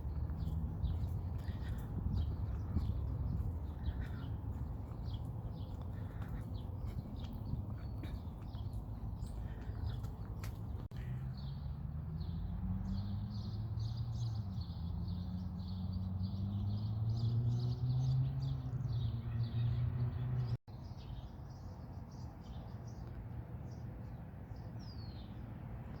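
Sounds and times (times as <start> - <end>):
passing car engine drone: 11.0 - 20.6.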